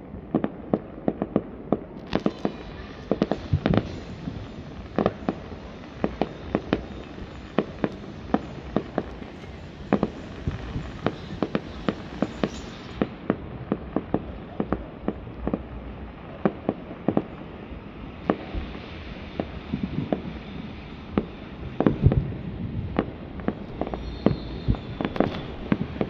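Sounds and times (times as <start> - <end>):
fireworks bangs: 0.2 - 26.0.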